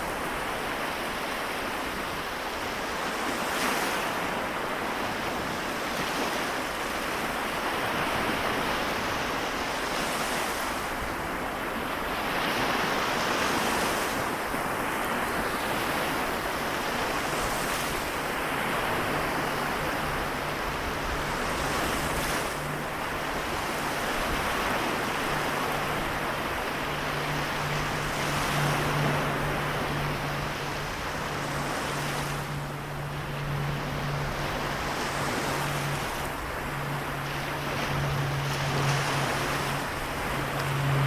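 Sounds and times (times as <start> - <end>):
small waves washing on shore: 0.0 - 41.0
steady low hum: 18.0 - 41.0.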